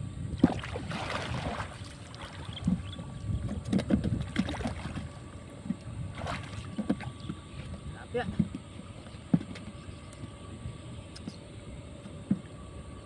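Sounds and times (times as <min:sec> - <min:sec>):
water sloshing and splashing: 0:00.3 - 0:13.0.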